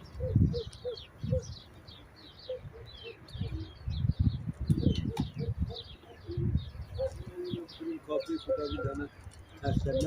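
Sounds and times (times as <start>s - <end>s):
low cooing calls: 0.0s - 4.0s, 4.7s - 9.2s
small birds chirping: 0.0s - 10.0s.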